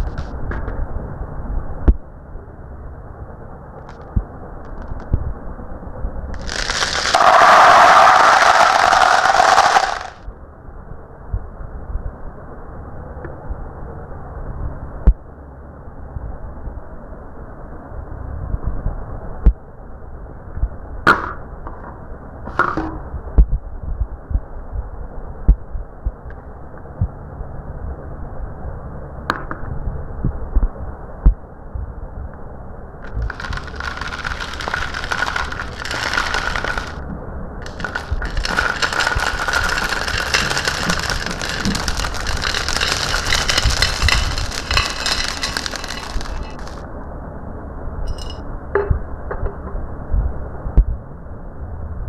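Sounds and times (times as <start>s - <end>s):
marbles clacking: 6.4s - 10.2s, 33.0s - 46.8s, 48.1s - 48.4s
marbles rolling on track: 6.4s - 10.2s, 33.0s - 46.8s, 48.1s - 48.4s.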